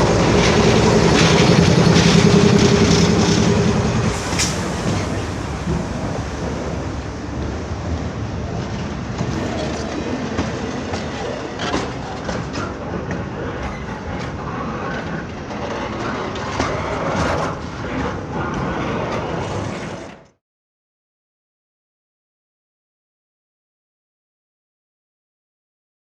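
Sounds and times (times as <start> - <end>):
train rumbling past: 0.0 - 20.3.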